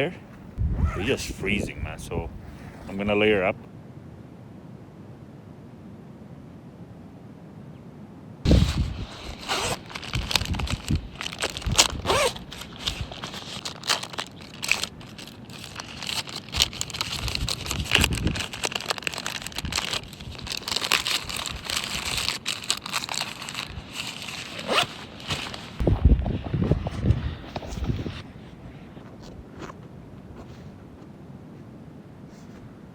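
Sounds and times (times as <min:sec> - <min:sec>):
zip-like tears and crunches: 0:00.6 - 0:01.3, 0:08.5 - 0:25.8
synthetic clothing rustling: 0:08.5 - 0:28.2.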